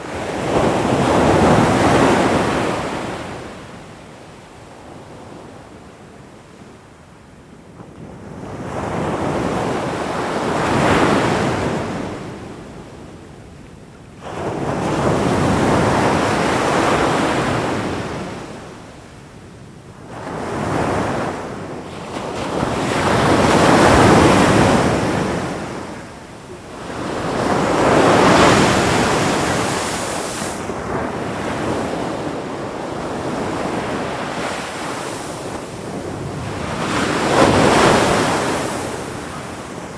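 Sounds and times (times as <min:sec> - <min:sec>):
ocean waves breaking: 0:26.8 - 0:39.9.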